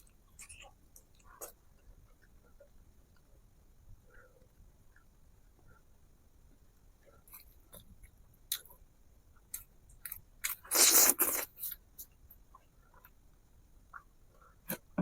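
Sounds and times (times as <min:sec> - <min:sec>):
person chewing: 0:09.5 - 0:11.8.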